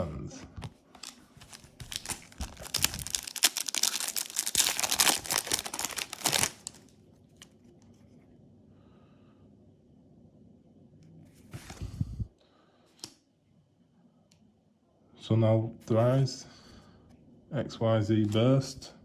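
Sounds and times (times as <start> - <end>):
foil wrapper crinkling and tearing: 1.0 - 6.9.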